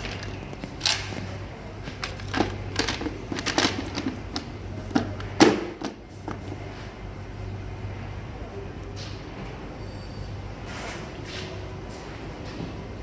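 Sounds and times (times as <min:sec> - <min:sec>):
hand tools clicking and clattering: 0:00.0 - 0:05.9
steady low hum: 0:00.0 - 0:13.0.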